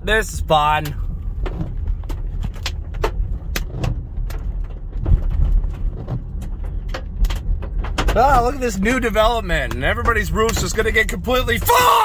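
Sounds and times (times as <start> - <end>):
low storm rumble: 0.0 - 11.8
hail striking car: 0.8 - 12.0.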